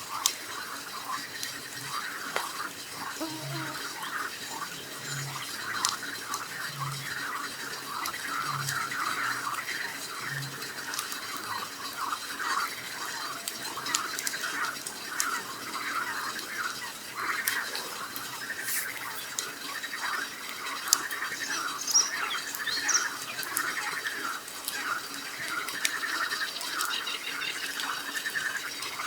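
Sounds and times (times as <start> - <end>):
campfire crackling: 0.0 - 29.0
frogs croaking: 0.0 - 29.0
high bird chirps: 21.3 - 23.2.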